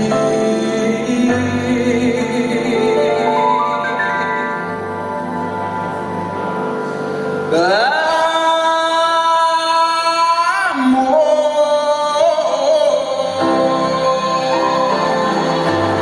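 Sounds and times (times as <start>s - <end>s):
live band music: 0.0s - 9.4s
person singing long wordless notes: 0.0s - 16.0s.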